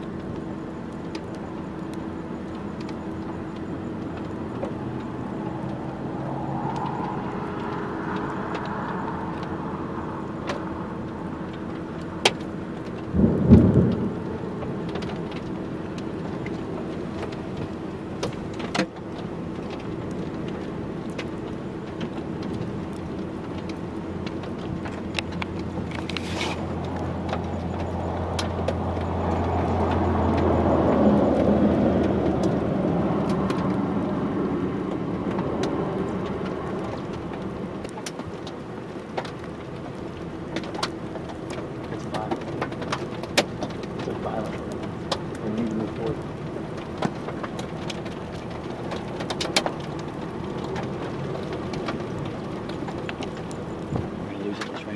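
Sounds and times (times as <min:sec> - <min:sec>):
low hum: 0:00.0 - 0:18.6
steady rain falling: 0:00.0 - 0:54.9
broad rumble: 0:02.5 - 0:18.5.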